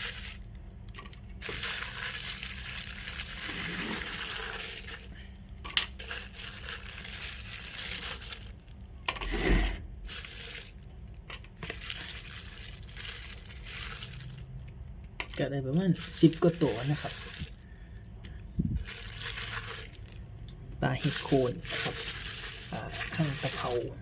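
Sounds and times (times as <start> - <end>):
fish rustling in container: 0.0 - 8.8, 9.5 - 14.8, 15.4 - 17.8, 18.6 - 20.3, 20.9 - 24.0.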